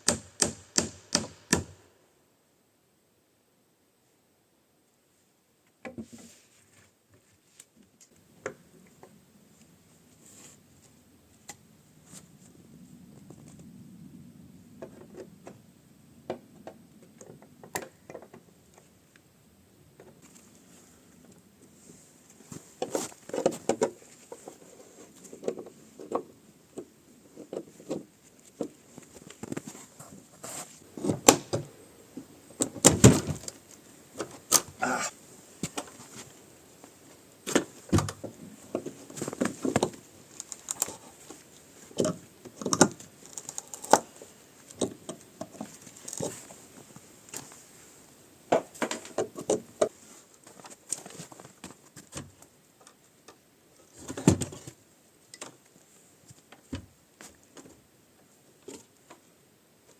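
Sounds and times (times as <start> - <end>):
tools knocking on wood: 0.0 - 1.8.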